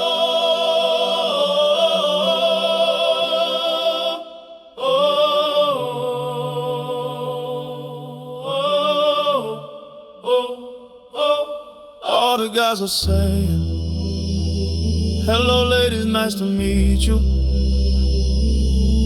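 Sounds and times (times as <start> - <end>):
wordless sung notes with vibrato: 13.0 - 19.0.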